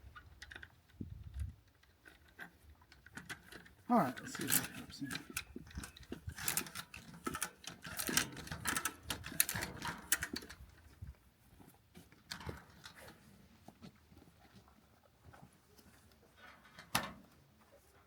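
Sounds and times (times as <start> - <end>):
metallic clicking and rattling: 1.7 - 10.7.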